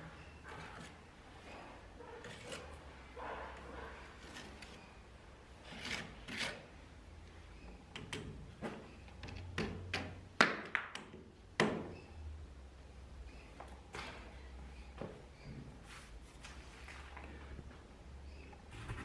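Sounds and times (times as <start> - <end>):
hand tools scraping a hard surface: 0.0 - 5.0, 5.6 - 6.7.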